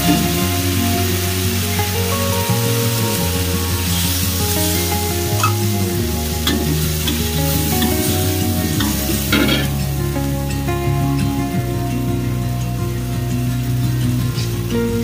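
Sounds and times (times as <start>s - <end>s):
meat sizzling in a wok: 0.0s - 10.4s.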